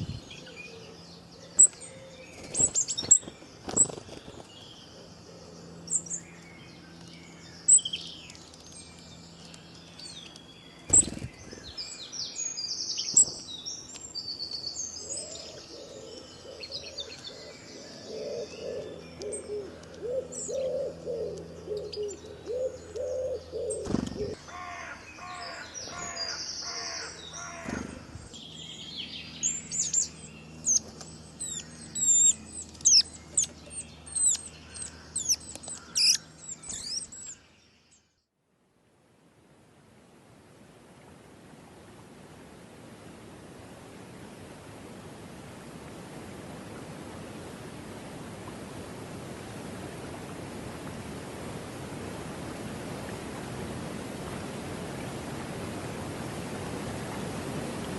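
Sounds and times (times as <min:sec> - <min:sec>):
birds chirping: 0:00.0 - 0:38.2
bird warbling call: 0:29.4 - 0:37.4.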